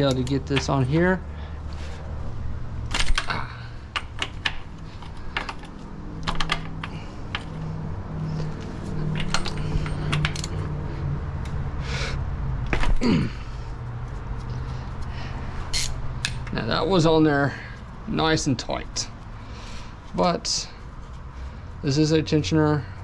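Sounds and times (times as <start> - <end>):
wrench clicking on metal: 9.1 - 10.7, 15.8 - 16.5.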